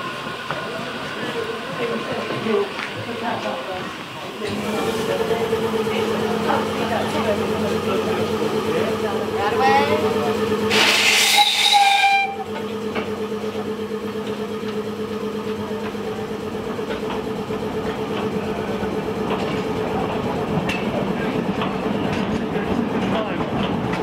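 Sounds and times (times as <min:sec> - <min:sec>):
train running hum: 0:00.0 - 0:24.0
loud hissing train whistle: 0:10.7 - 0:12.4.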